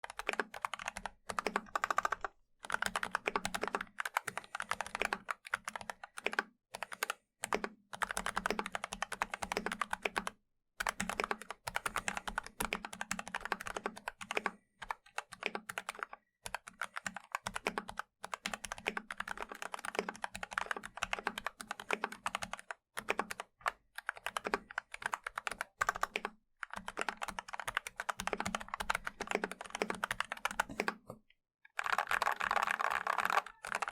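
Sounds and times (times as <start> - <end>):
typing on a mechanical keyboard: 0.0 - 31.0, 31.7 - 33.9.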